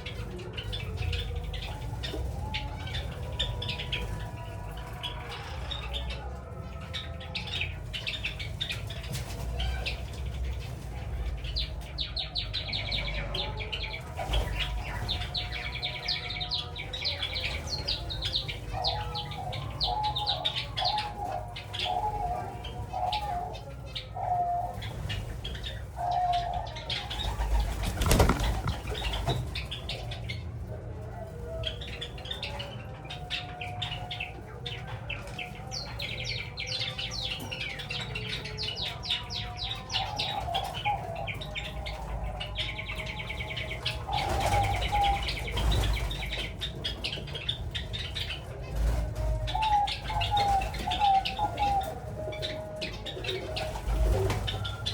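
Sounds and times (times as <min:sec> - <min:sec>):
dove cooing: 0:00.0 - 0:54.9
sparrows chirping: 0:00.0 - 0:54.9
wing flapping: 0:27.2 - 0:29.6.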